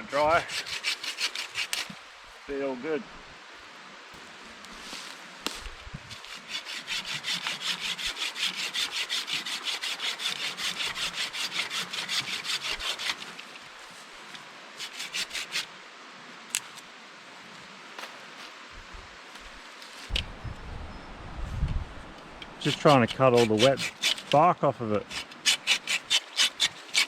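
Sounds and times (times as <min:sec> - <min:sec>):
hand saw cutting wood: 0:00.2 - 0:02.0, 0:06.1 - 0:13.5, 0:14.8 - 0:15.7, 0:22.6 - 0:24.4, 0:25.0 - 0:27.0.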